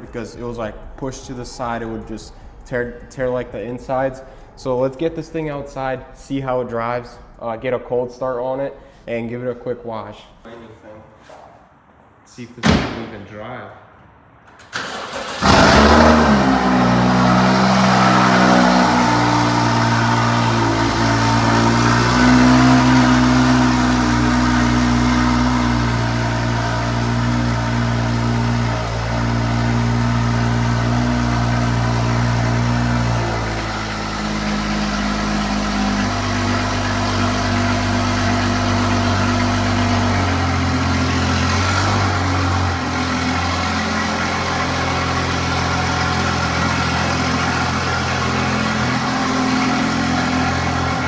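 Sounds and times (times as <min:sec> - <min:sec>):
car engine high idle: 0:14.8 - 0:51.0.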